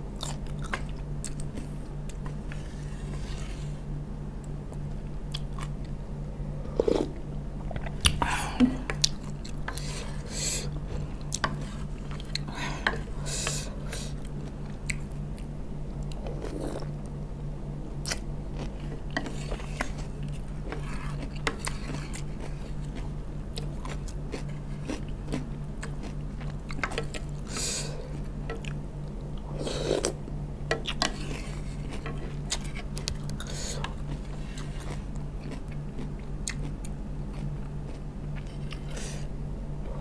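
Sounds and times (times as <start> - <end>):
steady low hum: 0.0 - 40.0
chewing and crunching vegetables: 0.2 - 3.6, 4.7 - 6.0, 6.7 - 17.1, 18.0 - 40.0.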